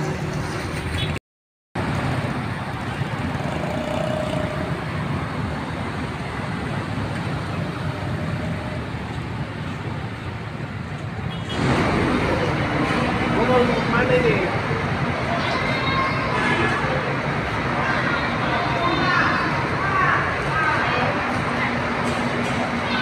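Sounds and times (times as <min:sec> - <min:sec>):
traffic noise: 0:00.0 - 0:01.2, 0:01.8 - 0:23.0
vehicle engines running: 0:00.0 - 0:01.2, 0:01.8 - 0:23.0.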